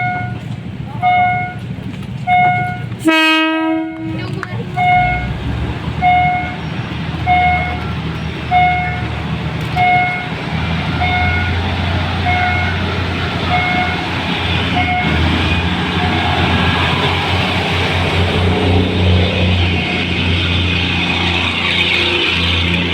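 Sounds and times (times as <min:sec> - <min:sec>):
diesel locomotive engine rumble: 0:00.0 - 0:22.9
electronic warning beep: 0:06.0 - 0:06.6, 0:07.2 - 0:09.1, 0:09.8 - 0:11.6, 0:12.2 - 0:12.8, 0:13.5 - 0:14.1, 0:14.8 - 0:15.2.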